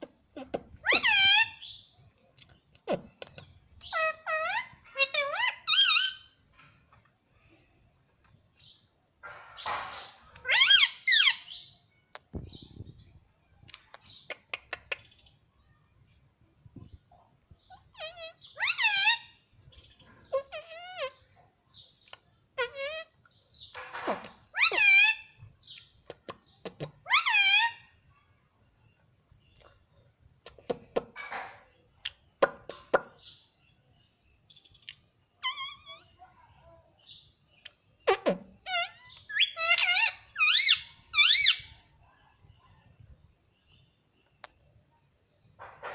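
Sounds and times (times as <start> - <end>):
parrot calling: 0.4 - 1.7, 3.8 - 6.4, 10.4 - 11.6, 17.7 - 21.2, 22.6 - 23.2, 23.8 - 25.4, 27.0 - 27.9, 35.4 - 36.1, 38.0 - 41.8.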